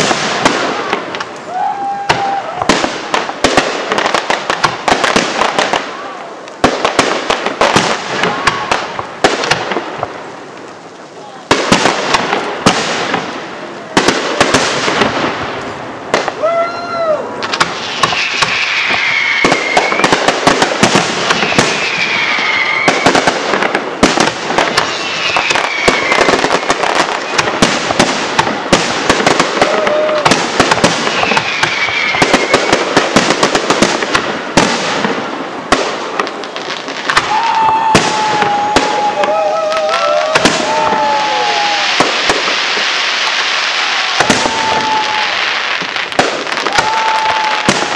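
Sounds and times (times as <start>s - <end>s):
firework bursts crackling: 0.0s - 16.5s, 17.2s - 47.9s
falling whistling tones: 18.4s - 20.2s, 21.4s - 23.1s, 24.9s - 26.3s.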